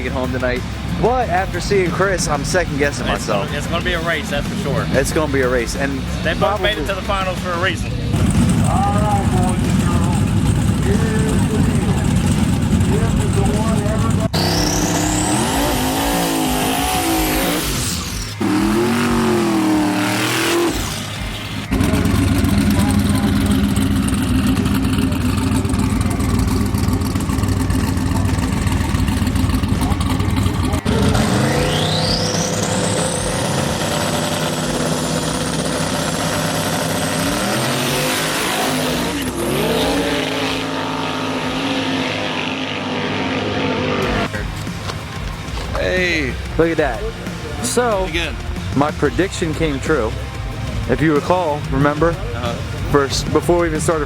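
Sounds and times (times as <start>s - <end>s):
racing car engines revving: 0.0s - 54.0s
turbo whistle: 14.4s - 19.1s.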